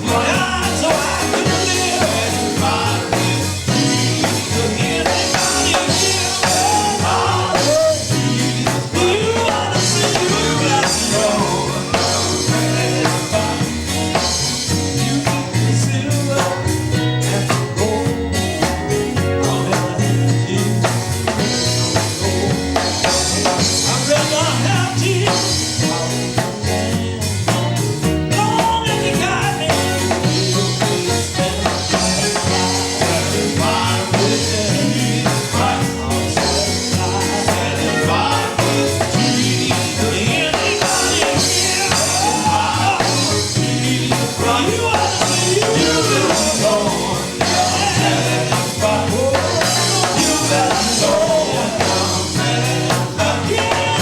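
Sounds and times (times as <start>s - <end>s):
drum kit: 0.0s - 54.0s
gospel group singing: 0.0s - 54.0s
steady bass line: 0.0s - 54.0s.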